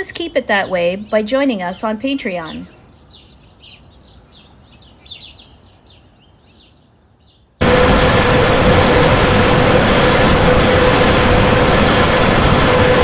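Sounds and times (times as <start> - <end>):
faint bird chirping: 0.0 - 7.6
steady hum: 7.6 - 13.0.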